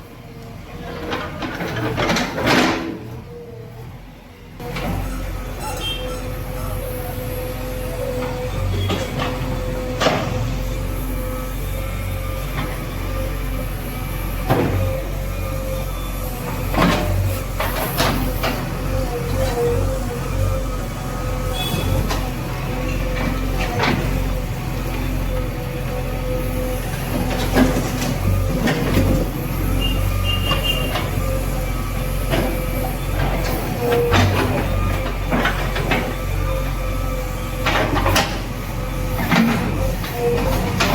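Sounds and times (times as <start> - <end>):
diesel engine running: 4.5 - 40.9
brief high squeal: 5.6 - 6.3.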